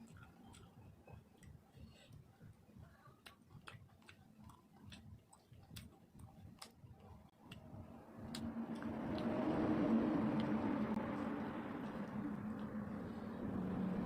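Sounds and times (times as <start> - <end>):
mouth clicks of chewing: 0.0 - 2.3, 2.9 - 7.7.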